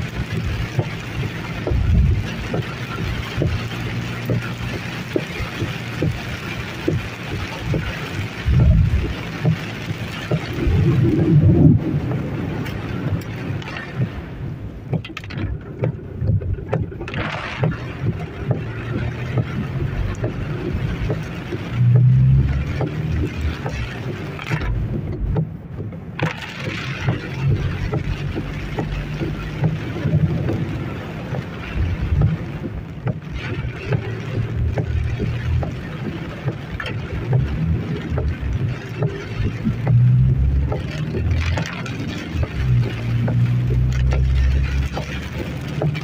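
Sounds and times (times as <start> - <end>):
heavy rain pelting a car: 0.0 - 46.0
low rumble: 0.0 - 46.0
wind buffeting: 10.3 - 17.0.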